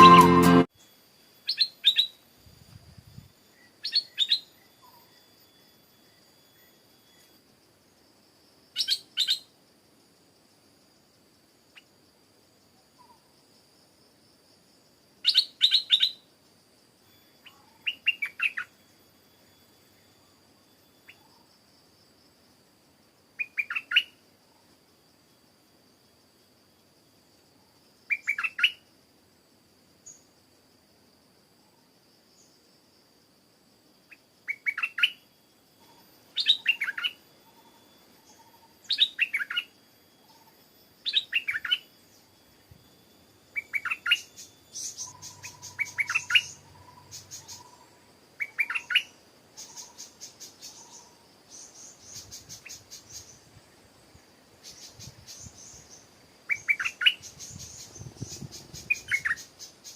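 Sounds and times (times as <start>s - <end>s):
bird calling in rising notes: 0.0s - 0.7s
faint steady high tone: 0.0s - 8.4s, 16.2s - 28.9s, 34.0s - 58.1s
birds chattering: 44.8s - 47.8s.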